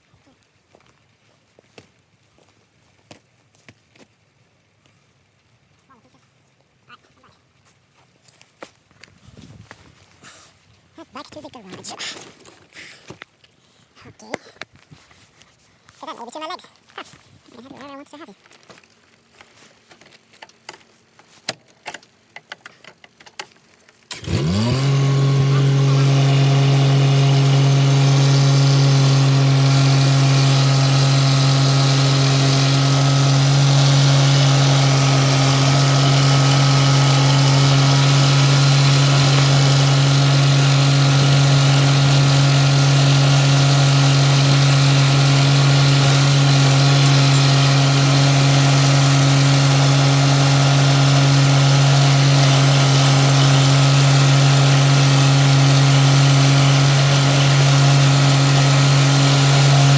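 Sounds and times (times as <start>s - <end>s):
tractor diesel engine running: 24.1s - 59.9s.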